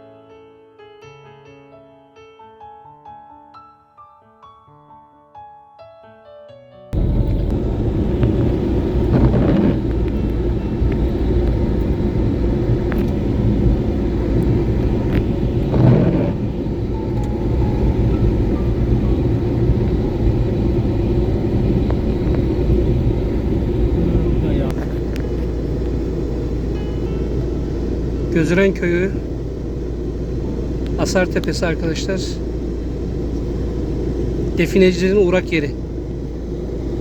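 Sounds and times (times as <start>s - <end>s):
piano music: 0.0s - 32.9s
car bump: 7.0s - 26.1s
car engine and tyre rumble: 7.0s - 37.0s.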